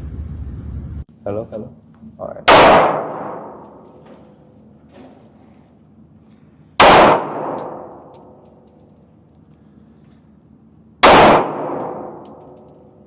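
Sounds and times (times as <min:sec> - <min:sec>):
handgun shot: 0:02.5 - 0:03.6, 0:06.8 - 0:08.0, 0:11.0 - 0:12.4.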